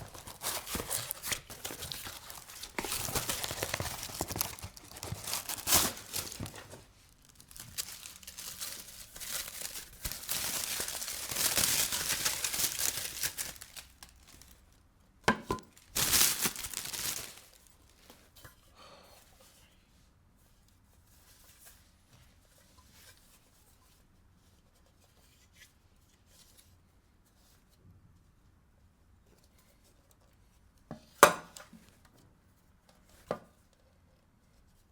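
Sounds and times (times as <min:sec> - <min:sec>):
packaging torn and crinkled: 0:00.0 - 0:14.8, 0:15.6 - 0:18.0.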